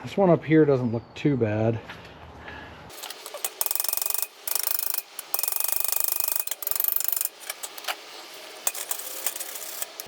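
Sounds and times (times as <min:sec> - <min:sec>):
wire brush scrubbing metal: 0:02.9 - 0:10.0.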